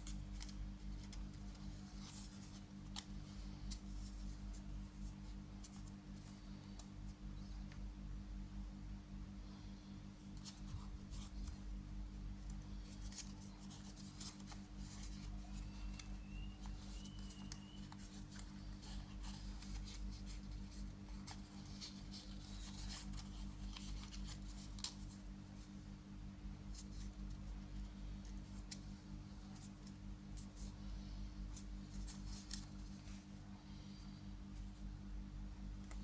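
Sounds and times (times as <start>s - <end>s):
paper crinkling and rustling: 0.0s - 6.8s, 12.4s - 25.7s, 31.5s - 33.3s
steady low hum: 0.0s - 36.0s.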